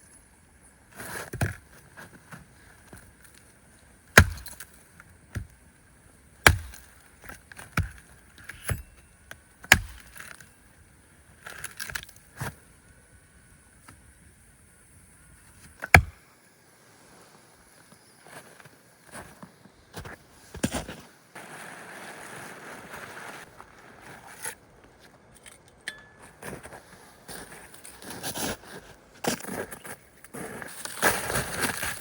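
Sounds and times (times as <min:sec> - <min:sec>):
small knocks and crackles: 0:06.4 - 0:10.6.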